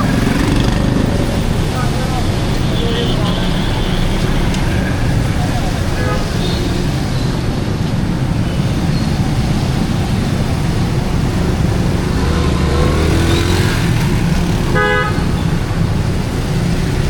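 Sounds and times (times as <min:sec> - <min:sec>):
vehicle approaching: 0:00.0 - 0:02.7, 0:07.3 - 0:17.0
traffic engines running: 0:00.0 - 0:17.0.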